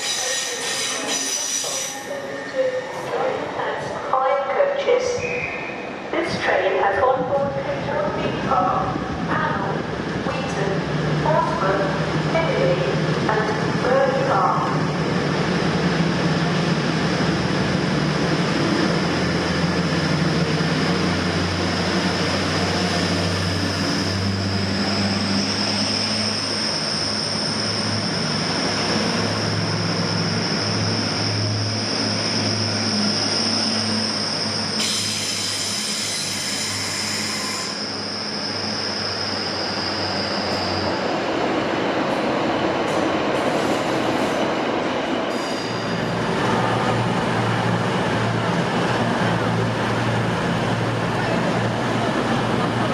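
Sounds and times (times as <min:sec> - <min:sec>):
train wheel squeal: 0:00.0 - 0:03.1, 0:22.0 - 0:41.1, 0:45.3 - 0:46.2
train running drone: 0:00.0 - 0:52.9.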